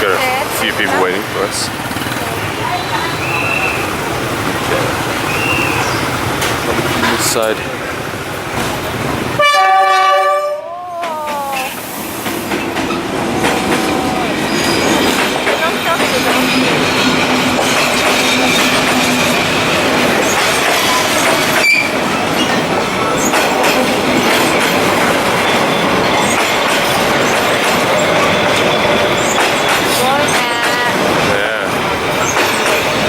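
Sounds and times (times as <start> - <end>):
train wheels rumbling on rails: 0.0 - 33.0
faint high wheel squeals: 1.8 - 4.4, 5.1 - 6.3, 13.8 - 19.6, 20.2 - 23.4, 24.1 - 30.6.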